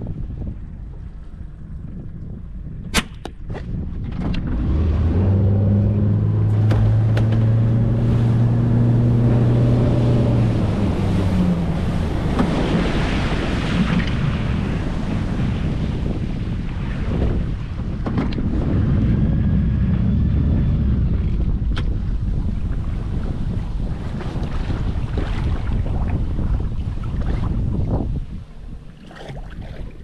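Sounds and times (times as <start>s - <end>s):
rushing wind and water: 0.0s - 30.0s
outboard motor humming: 4.1s - 15.0s, 23.8s - 30.0s.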